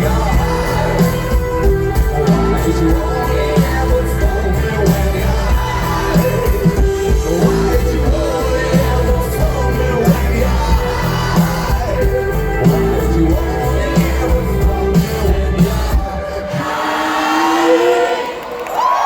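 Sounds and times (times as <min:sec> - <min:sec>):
steady drum beat: 0:00.0 - 0:16.5
live rock band playing: 0:00.0 - 0:16.6.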